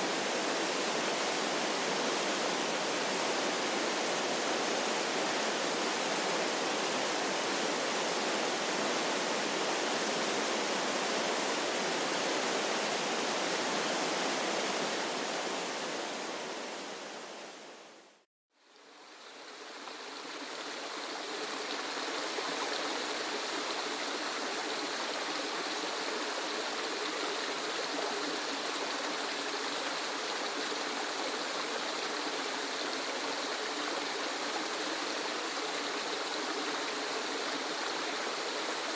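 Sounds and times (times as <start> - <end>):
waterfall rushing: 0.0 - 17.6
hissy waterfall: 0.0 - 38.9.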